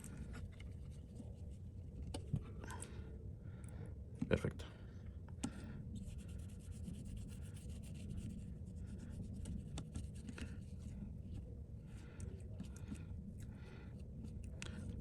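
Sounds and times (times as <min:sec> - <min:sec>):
scratchy rubbing on screen: 0:05.9 - 0:11.4.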